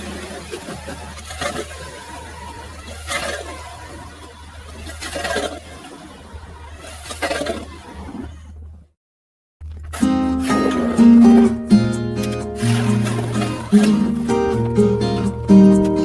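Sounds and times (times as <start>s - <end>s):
loud scraping rush: 10.4s - 16.0s
power ice auger drilling: 12.2s - 15.8s.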